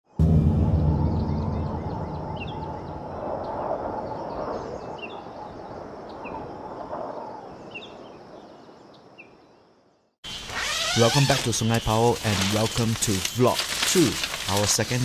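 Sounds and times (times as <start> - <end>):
bird chirping: 0.8 - 12.6.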